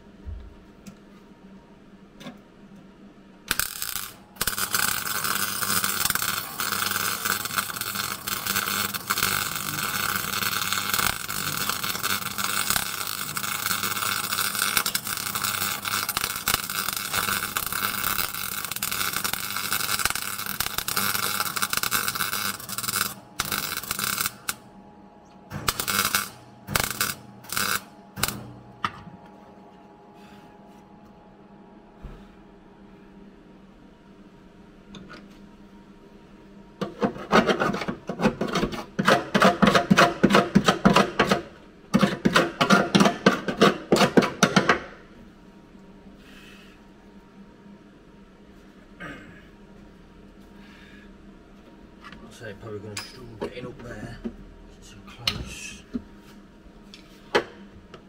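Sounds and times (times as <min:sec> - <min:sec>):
welder buzzing: 0:03.4 - 0:28.9.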